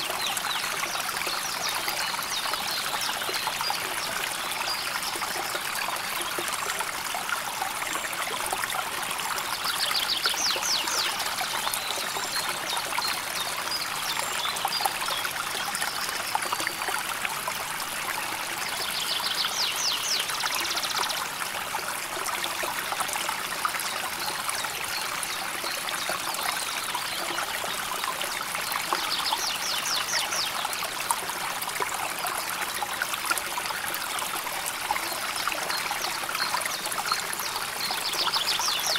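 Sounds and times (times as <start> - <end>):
river water over stones: 0.0 - 38.9.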